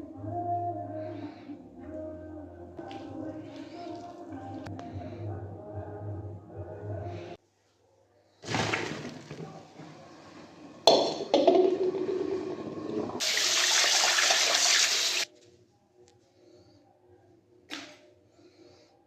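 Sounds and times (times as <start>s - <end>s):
water running and pouring: 8.4s - 15.3s.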